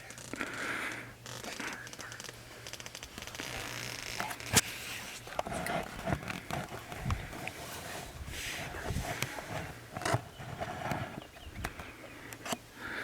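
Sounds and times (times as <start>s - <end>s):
clothing rustling and scraping: 3.4s - 11.2s.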